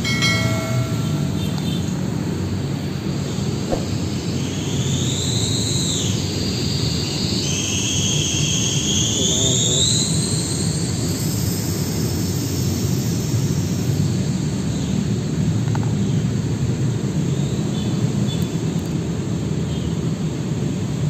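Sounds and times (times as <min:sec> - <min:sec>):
train rumbling: 0:00.0 - 0:04.8.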